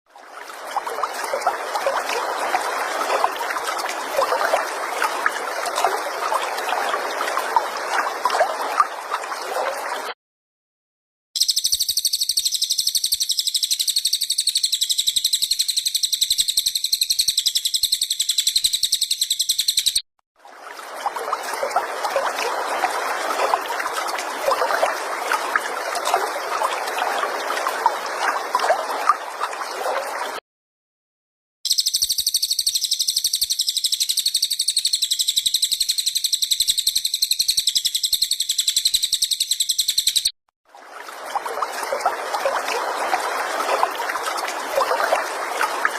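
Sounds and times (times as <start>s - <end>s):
high-pitched chirping bird trill: 11.4s - 20.0s, 31.7s - 40.3s.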